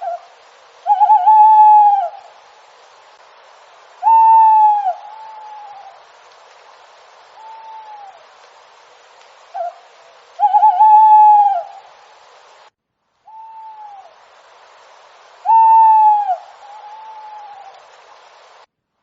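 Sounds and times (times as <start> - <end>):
owl hooting: 0.0 - 2.3, 4.0 - 6.1, 7.3 - 8.2, 9.5 - 11.9, 13.3 - 14.2, 15.4 - 17.9
background hiss: 0.0 - 19.0.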